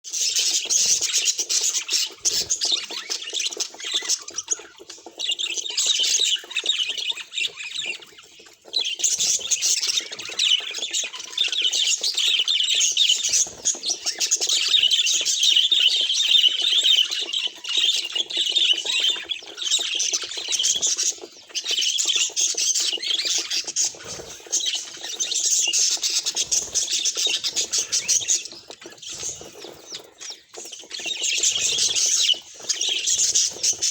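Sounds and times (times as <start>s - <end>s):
budgerigars chattering and warbling: 0.1s - 33.9s.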